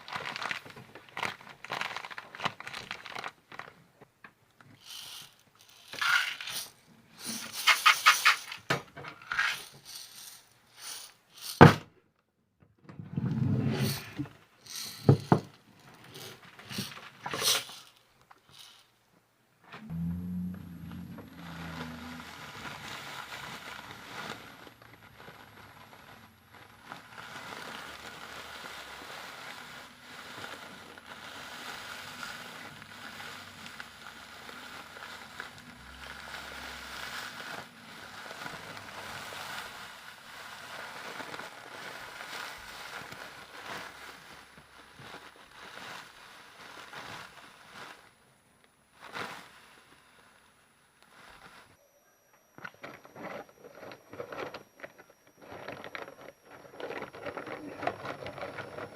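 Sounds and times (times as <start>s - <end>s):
crackling and rustling handling: 0.0s - 11.6s, 12.8s - 19.0s, 19.6s - 58.9s.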